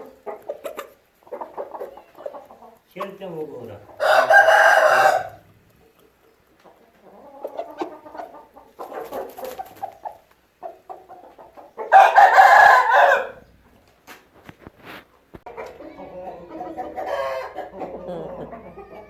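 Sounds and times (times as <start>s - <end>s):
chickens clucking: 0.0s - 19.0s
rooster crowing: 4.0s - 5.4s, 11.9s - 13.4s, 15.9s - 19.0s.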